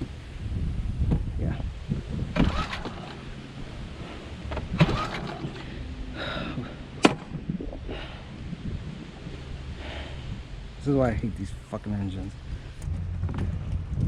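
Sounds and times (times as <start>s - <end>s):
engine turning over: 1.9s - 7.4s
starter cord yanked: 4.5s - 5.7s.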